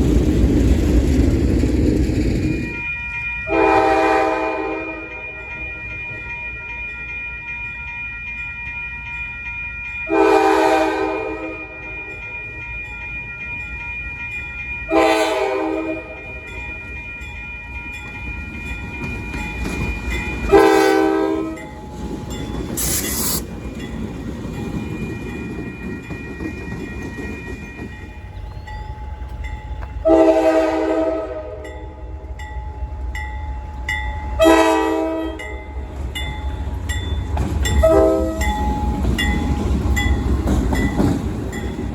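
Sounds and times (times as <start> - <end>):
train rumble: 0.0 - 8.4, 10.0 - 41.9
locomotive air horn blasts: 3.5 - 5.2, 10.1 - 11.8, 14.9 - 16.2, 20.5 - 21.6, 30.0 - 31.7, 34.4 - 35.4, 37.8 - 38.4.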